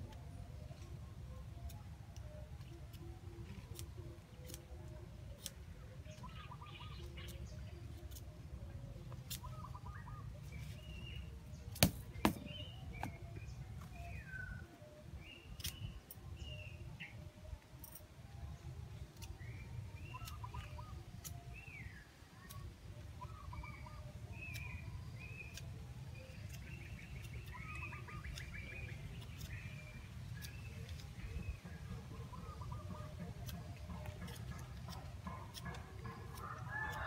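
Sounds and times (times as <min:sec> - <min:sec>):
small birds chirping: 0:09.0 - 0:17.2, 0:19.1 - 0:37.0.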